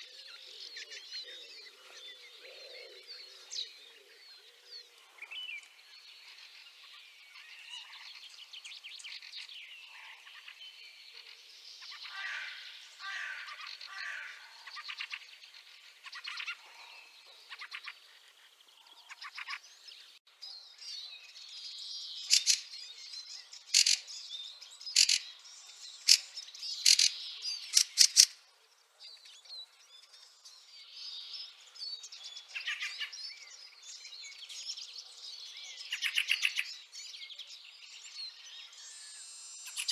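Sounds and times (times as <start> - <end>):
birds twittering chatter: 0.0 - 39.9
birds harsh chacking calls: 22.2 - 22.7, 23.7 - 24.1, 24.9 - 25.4, 26.0 - 28.4.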